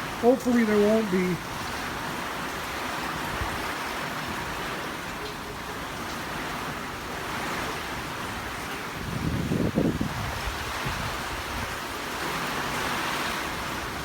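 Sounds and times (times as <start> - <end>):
hurricane wind blowing: 0.0 - 14.0.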